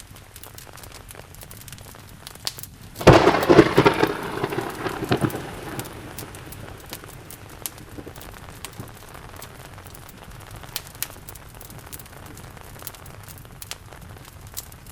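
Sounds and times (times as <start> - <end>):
steady rain: 0.0 - 14.9
thunderclap rumbling: 3.0 - 9.1.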